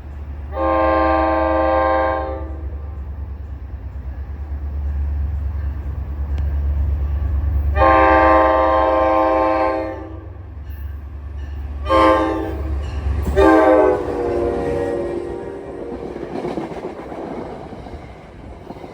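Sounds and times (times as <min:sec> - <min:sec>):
low rumble of train: 0:00.0 - 0:18.9
train horn blasts: 0:00.5 - 0:03.0, 0:07.7 - 0:10.4, 0:11.8 - 0:16.2.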